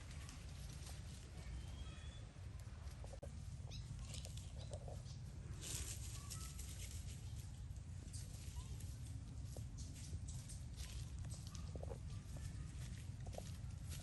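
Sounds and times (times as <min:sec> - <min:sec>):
rustling: 0:00.0 - 0:01.8, 0:02.6 - 0:14.0.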